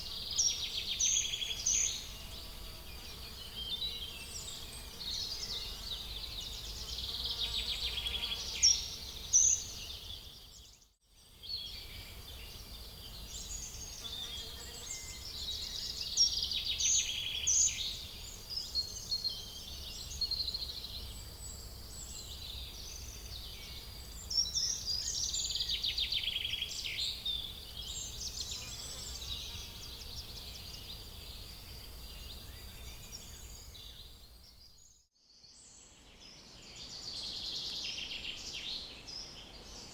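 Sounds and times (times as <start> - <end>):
small birds chirping and singing: 0.0 - 39.9.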